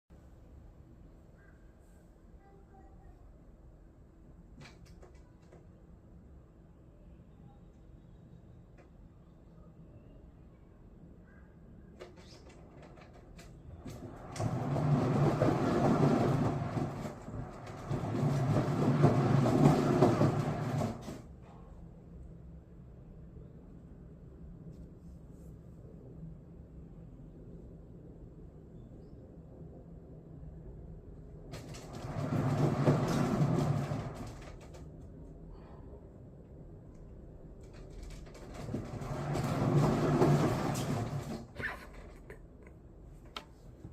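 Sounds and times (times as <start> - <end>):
exercise wheel rolling rumble: 12.6 - 21.3, 31.4 - 35.0, 37.6 - 42.3.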